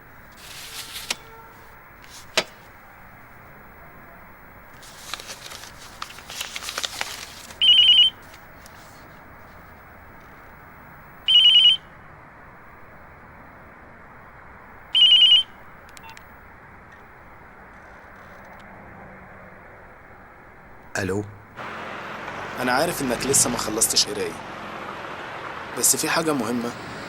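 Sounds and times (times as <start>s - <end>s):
rustling: 0.3s - 2.7s, 4.8s - 10.4s
telephone ringing: 7.6s - 8.3s, 11.3s - 11.8s, 15.0s - 16.2s.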